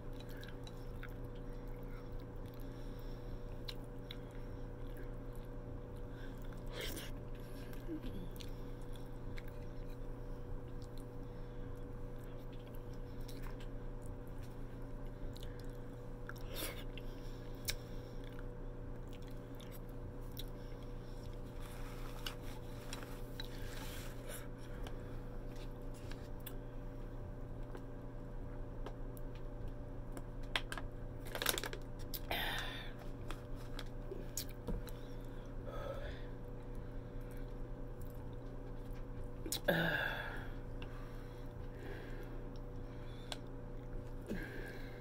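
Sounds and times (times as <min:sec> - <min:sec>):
chewing and wet mouth noises: 0:00.0 - 0:26.6, 0:33.0 - 0:35.5, 0:36.6 - 0:39.7
steady low hum: 0:00.0 - 0:45.0.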